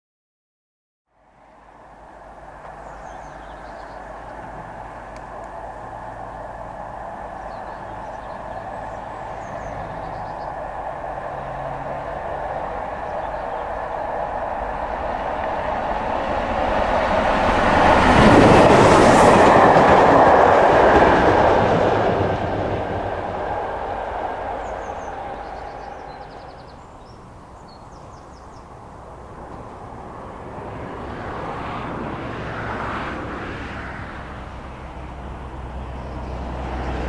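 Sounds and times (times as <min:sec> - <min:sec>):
train wheels clattering on rails: 0:02.5 - 0:27.1.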